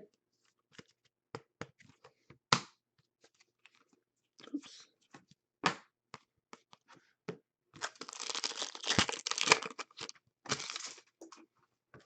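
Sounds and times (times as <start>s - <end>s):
foil wrapper crinkling: 7.8s - 11.1s.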